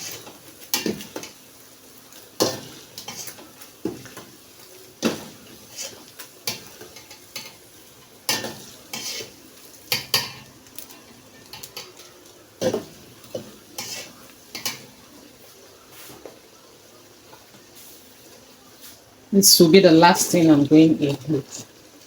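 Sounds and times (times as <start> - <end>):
faint sizzle: 0.0 - 22.0
metal spoon scraping a pot: 2.4 - 3.4, 5.0 - 7.6, 8.3 - 10.4, 13.8 - 14.8.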